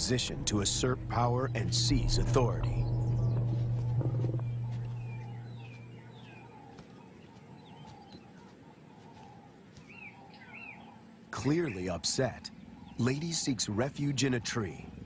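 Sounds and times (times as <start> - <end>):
low rumble: 0.0 - 6.6
birds chirping: 0.0 - 15.0.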